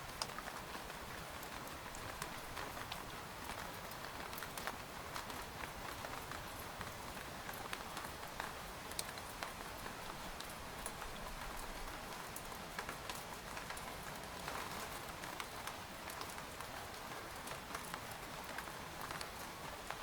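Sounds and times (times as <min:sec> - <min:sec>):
rain pattering on a tent: 0:00.0 - 0:20.0.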